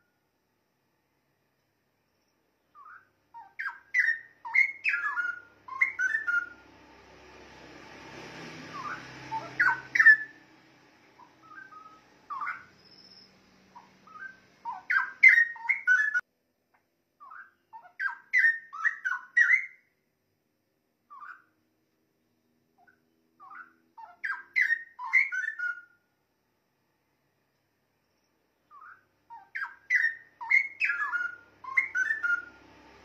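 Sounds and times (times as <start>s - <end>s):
bird singing whistled phrases: 2.6s - 6.6s, 8.7s - 10.4s, 11.2s - 16.2s, 17.2s - 19.9s, 21.1s - 21.5s, 22.9s - 26.0s, 28.7s - 32.6s.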